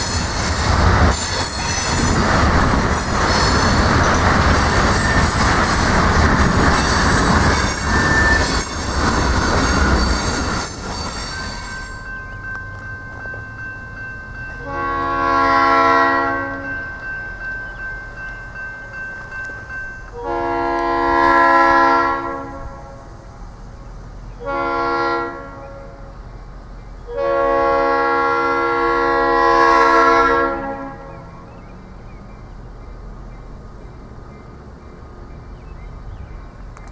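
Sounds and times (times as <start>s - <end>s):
train wheels on rails: 0.0s - 27.2s, 31.0s - 36.9s
locomotive air horn blasts: 14.6s - 16.8s, 20.2s - 23.1s, 24.4s - 26.1s, 27.1s - 31.3s.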